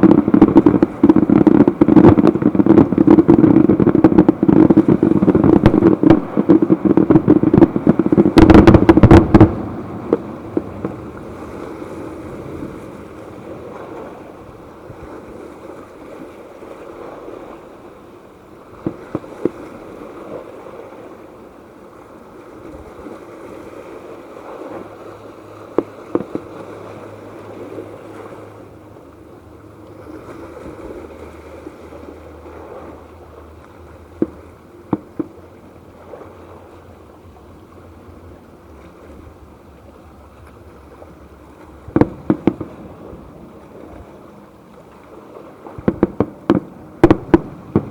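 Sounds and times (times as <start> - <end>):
fireworks banging: 0.0 - 12.7, 41.9 - 43.0, 45.6 - 47.9
steady noisy background: 0.0 - 47.9.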